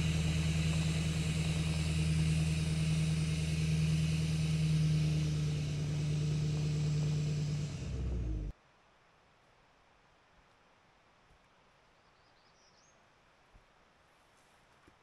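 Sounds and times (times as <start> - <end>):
truck engine running: 0.0 - 8.5.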